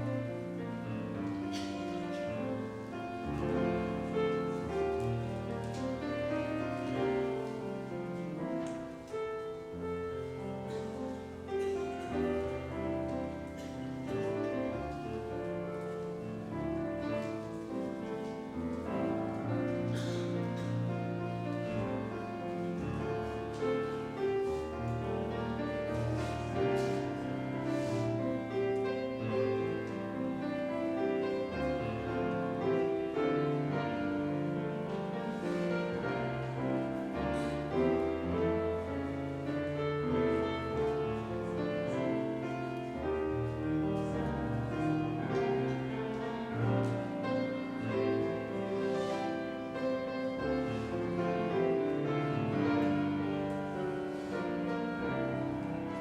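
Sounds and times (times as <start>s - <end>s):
piano playing: 0.0s - 56.0s
cello playing: 11.5s - 56.0s.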